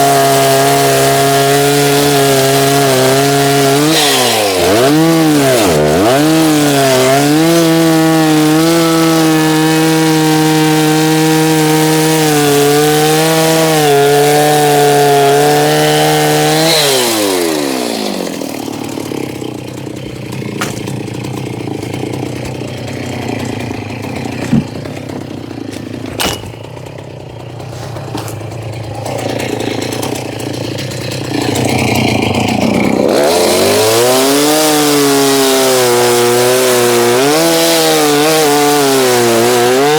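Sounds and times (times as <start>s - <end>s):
chainsaw cutting and idling: 0.0s - 39.9s
small knocks: 20.2s - 21.4s, 24.0s - 27.0s.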